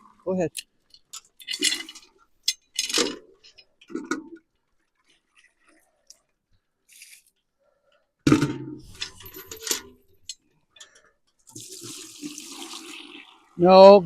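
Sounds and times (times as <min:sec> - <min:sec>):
water pouring: 0:11.5 - 0:13.6.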